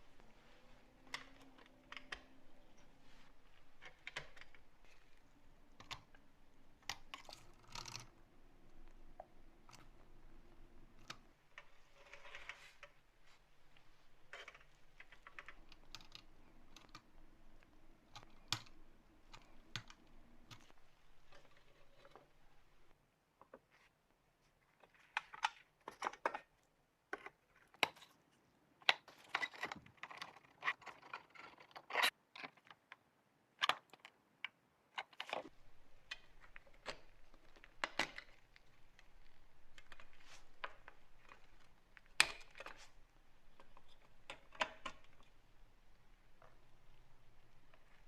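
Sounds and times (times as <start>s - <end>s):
clicks and taps of small parts: 1.0s - 2.5s, 33.6s - 45.4s.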